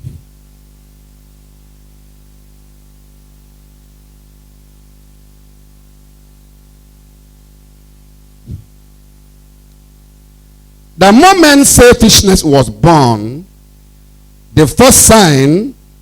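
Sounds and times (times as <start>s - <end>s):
constant hiss: 0.0s - 16.0s
electrical hum: 0.0s - 16.0s.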